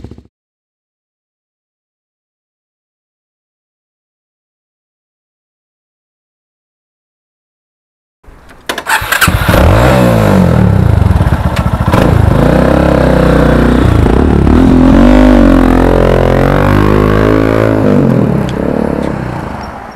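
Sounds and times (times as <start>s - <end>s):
motorcycle engine revving: 8.9s - 19.5s.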